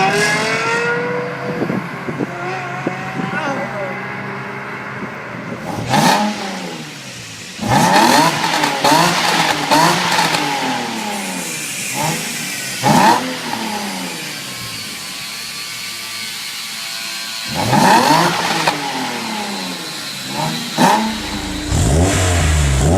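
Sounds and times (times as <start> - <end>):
car engine revving: 5.6 - 14.0, 17.5 - 22.9.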